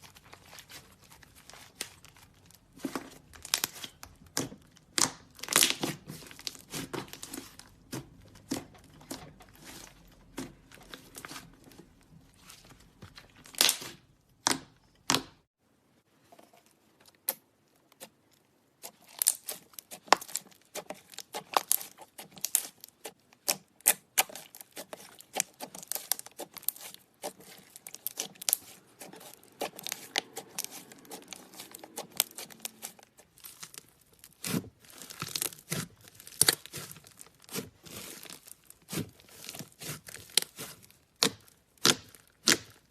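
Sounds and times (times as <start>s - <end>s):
slime squishing and crackling: 0.0s - 15.4s, 17.2s - 42.9s.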